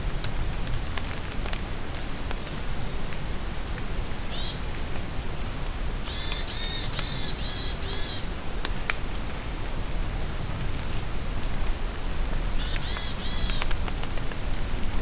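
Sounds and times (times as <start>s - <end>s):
steady rain: 0.0s - 15.0s
forest bird calling: 2.4s - 3.6s, 4.3s - 4.9s, 5.9s - 8.4s, 12.6s - 13.8s
water drip ticks: 11.6s - 14.5s.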